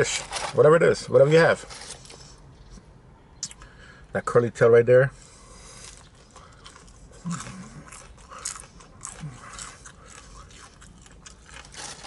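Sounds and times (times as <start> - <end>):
chewing crispy fried fish: 5.6 - 12.0.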